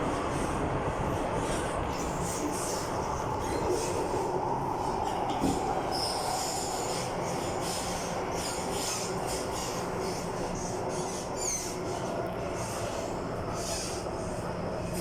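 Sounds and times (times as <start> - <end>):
train wheels rumbling on rail: 0.0 - 15.0
high wheel squeal: 5.9 - 12.1.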